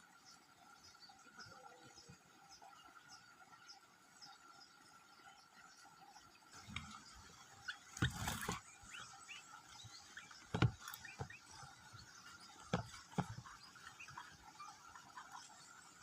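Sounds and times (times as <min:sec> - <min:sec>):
nestling birds cheeping: 0:00.0 - 0:16.0
rustle in nest: 0:06.6 - 0:14.3.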